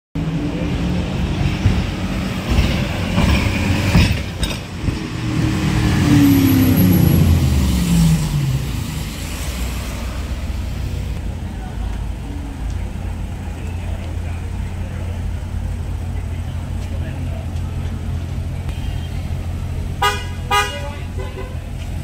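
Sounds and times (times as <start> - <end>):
vehicle engines running: 0.2 - 22.0.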